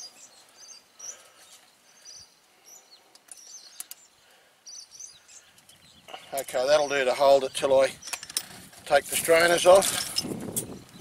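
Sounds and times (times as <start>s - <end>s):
small birds chirping: 0.0s - 11.0s
barbed wire clicks: 8.0s - 8.6s.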